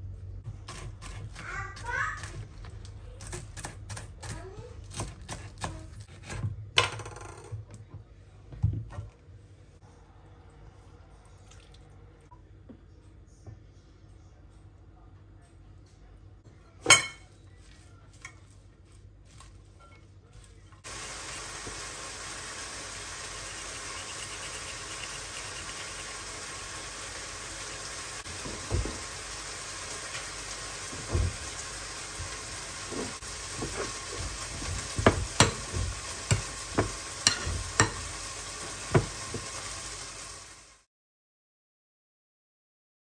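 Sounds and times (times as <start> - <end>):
utensil stirring food: 0.4 - 6.5, 17.7 - 40.3
food sizzling in a pan: 20.8 - 40.9
utensil knocking against pan: 33.6 - 38.1.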